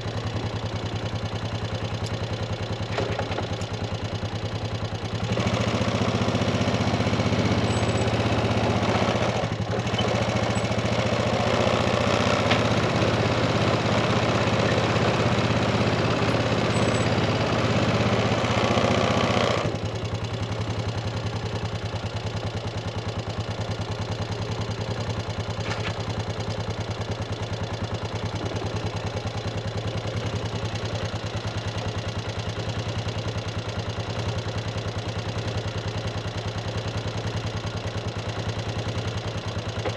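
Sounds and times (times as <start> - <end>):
tractor engine running: 0.0 - 39.9
rough machine noise: 5.3 - 19.8.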